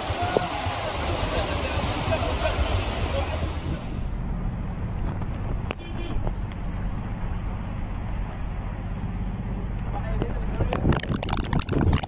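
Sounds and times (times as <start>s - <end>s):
car engine rumbling: 0.0s - 12.0s
wind noise on microphone: 9.5s - 12.0s.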